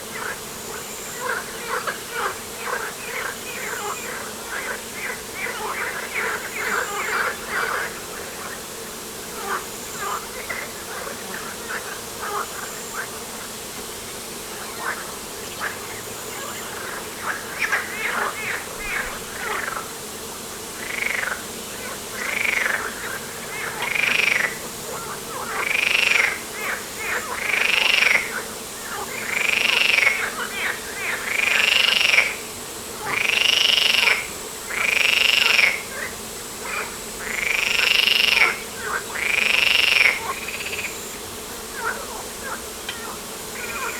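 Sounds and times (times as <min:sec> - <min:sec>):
chorus of frogs croaking: 0:00.0 - 0:08.6, 0:09.4 - 0:13.6, 0:14.4 - 0:19.9, 0:20.8 - 0:43.9
nearby frog calling loudly: 0:22.2 - 0:28.2.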